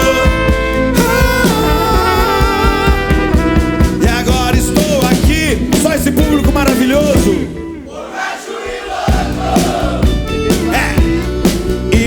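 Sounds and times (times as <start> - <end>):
live rock band playing: 0.0 - 7.8, 9.1 - 12.0
group voices: 7.7 - 10.8.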